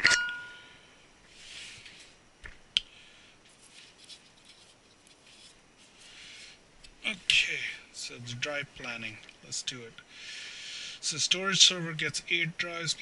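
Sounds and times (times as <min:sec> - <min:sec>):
soft rustling and scraping: 0:03.4 - 0:07.6.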